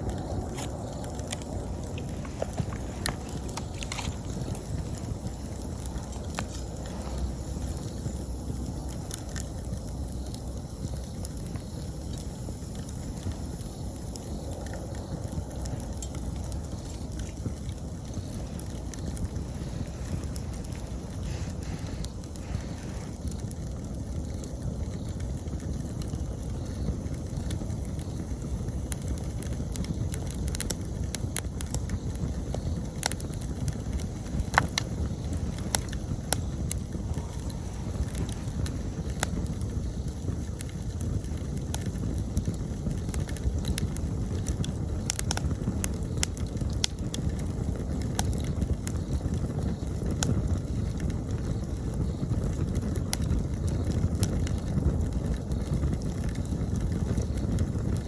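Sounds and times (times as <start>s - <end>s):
campfire crackling and popping: 0.0s - 58.0s.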